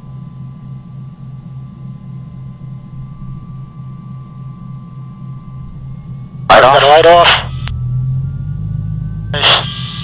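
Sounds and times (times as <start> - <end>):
high engine whine: 0.0 - 10.0
turbine engine starter drone: 7.2 - 10.0.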